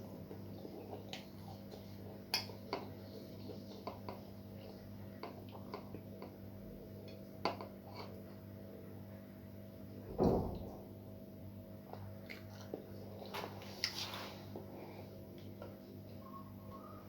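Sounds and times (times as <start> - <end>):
person chewing food: 12.0 - 14.0.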